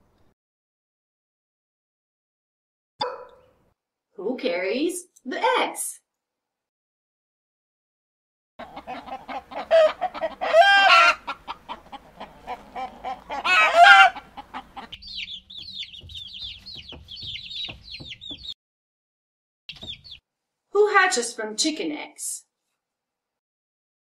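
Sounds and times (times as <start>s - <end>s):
hen cackling calls: 8.6s - 16.0s
chicks peeping: 8.6s - 18.6s, 19.7s - 20.2s
hen clucking: 8.6s - 18.6s.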